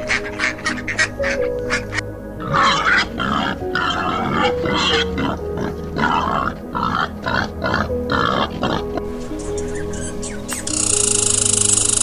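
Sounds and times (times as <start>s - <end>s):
peccary grunting: 2.4s - 9.2s.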